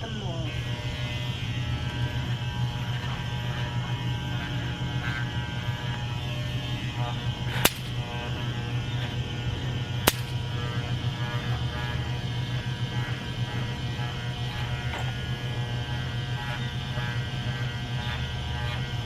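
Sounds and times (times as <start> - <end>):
electric hair clippers buzzing: 0.0 - 19.0
sharp click: 7.6 - 8.0, 10.1 - 10.4.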